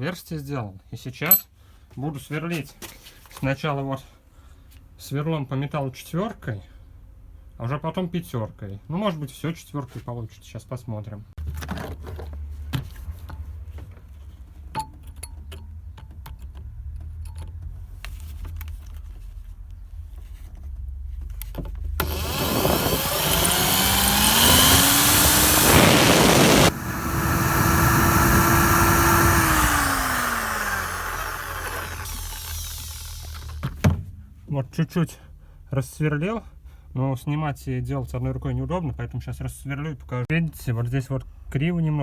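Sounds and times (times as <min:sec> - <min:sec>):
low hum: 0:22.0 - 0:33.6
power drill boring into steel: 0:22.0 - 0:33.6.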